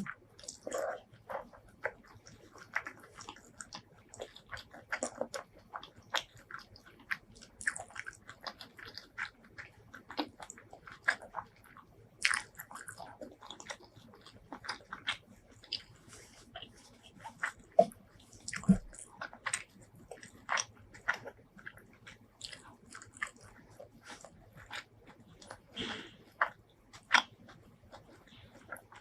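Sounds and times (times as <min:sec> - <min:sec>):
food crunching: 0:00.0 - 0:29.0
wet chewing and biting: 0:00.0 - 0:29.0.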